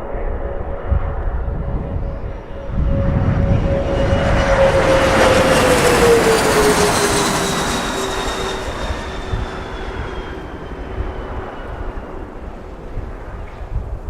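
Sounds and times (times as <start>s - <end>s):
jet engines whining: 0.0s - 14.0s.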